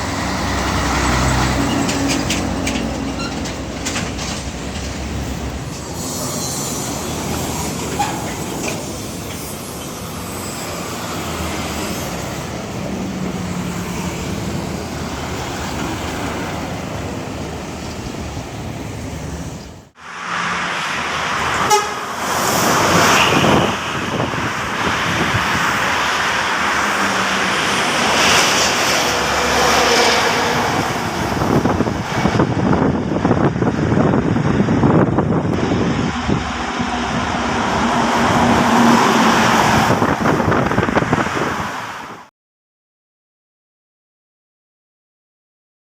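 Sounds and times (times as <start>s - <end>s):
heavy trucks passing: 0.0s - 42.3s
vehicle horn: 21.6s - 22.1s.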